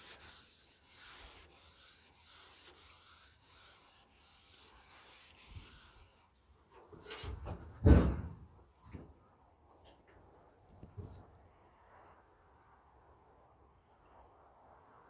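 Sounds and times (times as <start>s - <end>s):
hand sanding rasping hiss: 0.0s - 7.3s
light clicks of sanding block: 0.0s - 7.4s.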